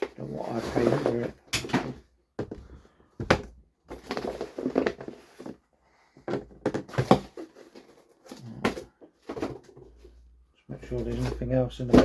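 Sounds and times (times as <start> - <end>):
knocks and clicks of boxes: 0.9 - 5.6, 6.2 - 10.0
packaging rustling: 3.9 - 5.6.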